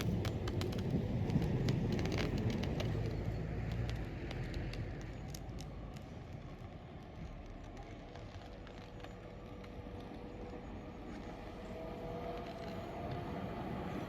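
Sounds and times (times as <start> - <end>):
electric train rumble: 0.0 - 3.5, 8.4 - 14.0.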